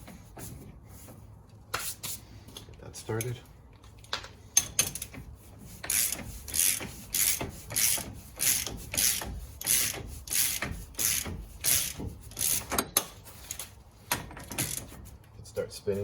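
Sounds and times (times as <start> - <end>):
ratchet wrench ratcheting: 5.8 - 13.7, 14.4 - 15.0.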